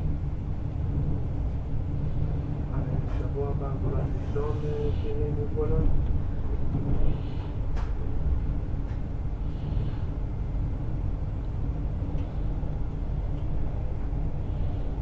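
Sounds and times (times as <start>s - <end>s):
train rumbling on rails: 0.0s - 15.0s
faint clicks: 12.1s - 12.4s.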